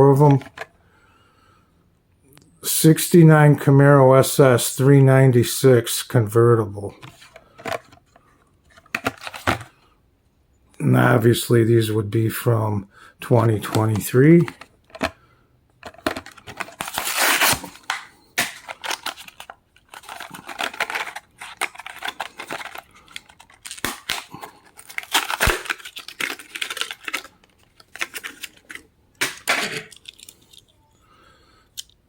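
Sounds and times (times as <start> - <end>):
blister packaging ripping and rustling: 16.3 - 30.5.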